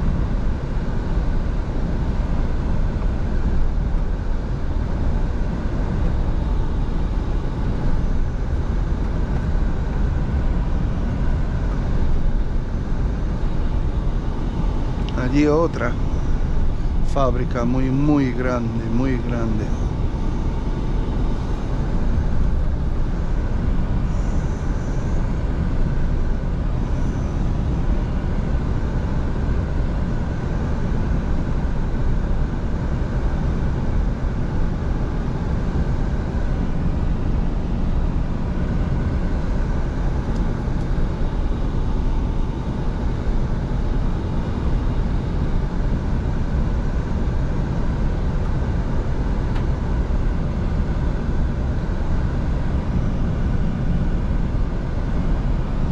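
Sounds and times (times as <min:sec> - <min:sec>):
truck engine drone: 0:11.2 - 0:25.9.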